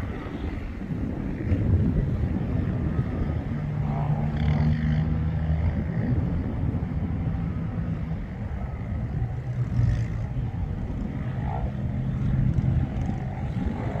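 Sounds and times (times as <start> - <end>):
off-road vehicle engines: 0.0 - 14.0.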